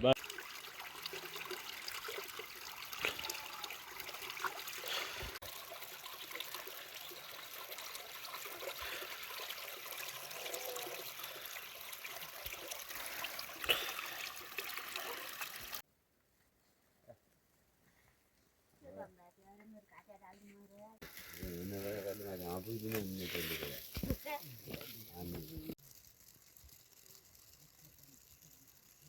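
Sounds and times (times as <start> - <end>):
water trickling: 0.0 - 15.8, 21.0 - 29.0.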